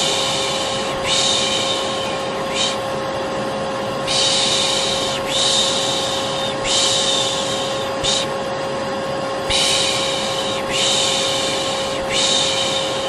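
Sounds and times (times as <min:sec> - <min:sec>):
vacuum cleaner running: 0:00.0 - 0:13.0
person shushing: 0:09.5 - 0:13.0.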